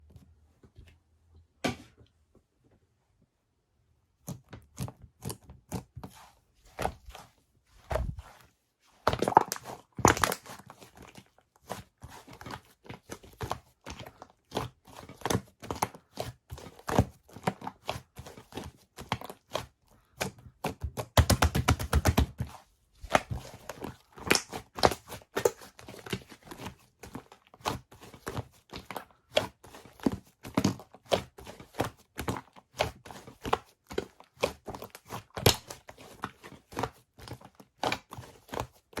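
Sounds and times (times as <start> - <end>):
slime popping and crackling: 9.1 - 10.6, 24.2 - 25.7.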